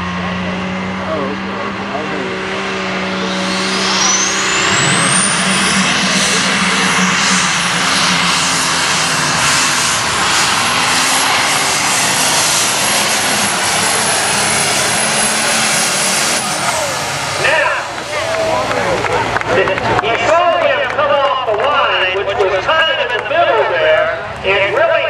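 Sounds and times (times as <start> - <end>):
diesel tractor engine at full power: 0.0 - 25.0
turbo whine: 1.0 - 19.4.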